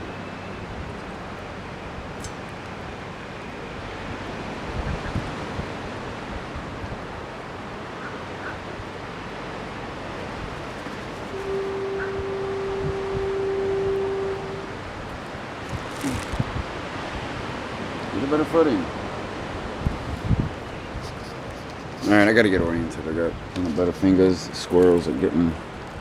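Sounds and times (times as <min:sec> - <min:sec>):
ocean surf: 0:00.0 - 0:26.0
wind buffets on microphone: 0:00.0 - 0:26.0
long steady horn note: 0:09.8 - 0:17.5.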